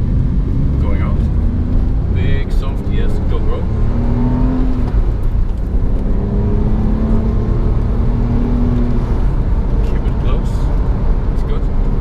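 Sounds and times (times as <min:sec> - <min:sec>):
car engine under throttle: 0:00.0 - 0:12.0.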